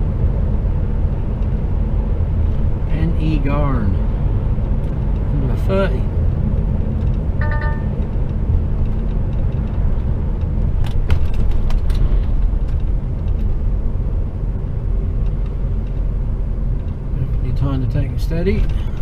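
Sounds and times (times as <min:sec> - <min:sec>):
lorry engine and road rumble: 0:00.0 - 0:19.0
short steady tone: 0:07.4 - 0:08.0.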